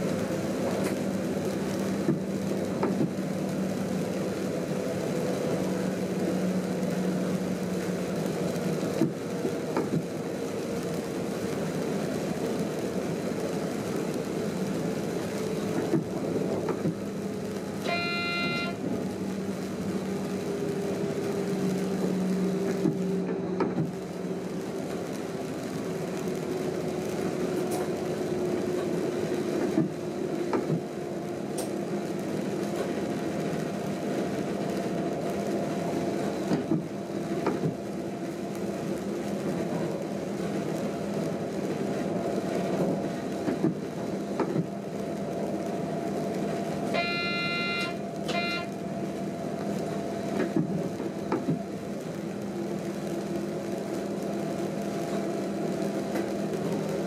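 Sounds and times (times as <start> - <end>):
train drive drone: 0.0 - 57.0
electronic warning tone: 17.8 - 18.8, 47.0 - 48.7.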